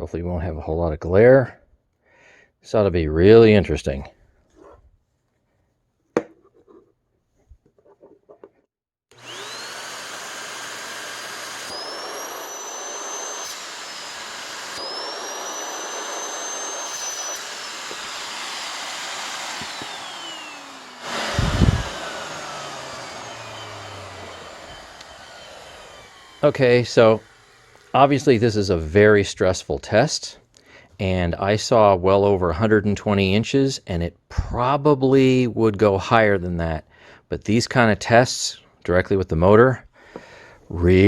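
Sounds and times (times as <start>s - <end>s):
vacuum motor whining: 9.1s - 28.4s.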